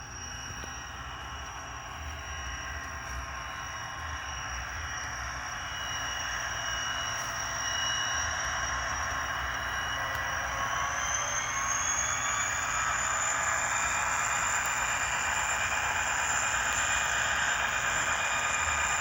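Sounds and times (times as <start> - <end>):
model train diesel engine sound: 0.0 - 19.0.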